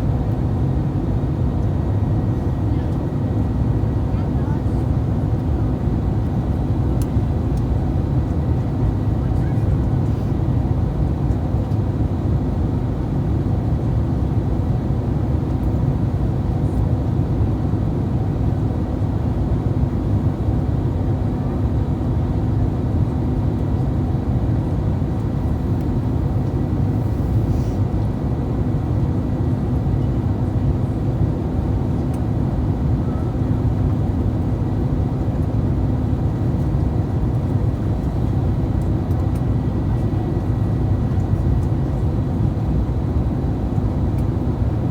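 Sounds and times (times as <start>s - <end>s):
airplane cabin rumble: 4.1s - 4.8s, 24.4s - 29.1s.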